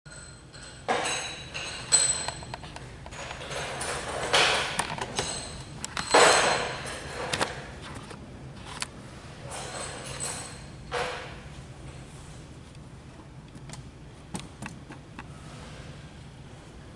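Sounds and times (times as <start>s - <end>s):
metal tools clanking: 0.1s - 7.6s, 9.5s - 11.4s.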